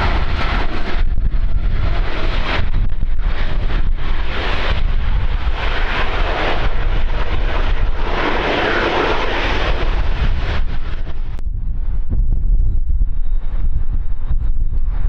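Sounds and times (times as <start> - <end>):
airplane passing: 0.0 - 12.1
wind buffeting microphone: 0.0 - 15.0.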